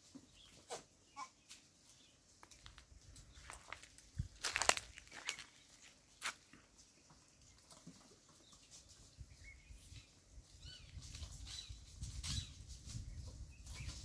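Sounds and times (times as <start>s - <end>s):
faint bird chirps: 0.3s - 2.2s
wind rumble on microphone: 9.1s - 14.0s.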